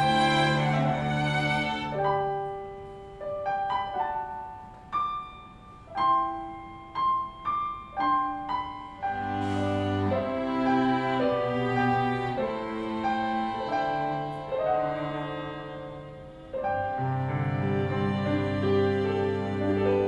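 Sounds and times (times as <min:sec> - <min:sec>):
bowed strings: 0:00.0 - 0:02.4, 0:09.0 - 0:20.0
piano notes: 0:00.0 - 0:20.0.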